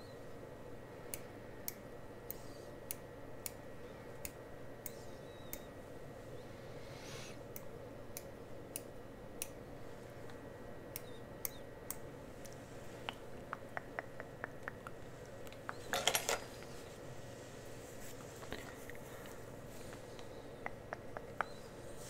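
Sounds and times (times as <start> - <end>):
small ticks: 10.3 - 15.9.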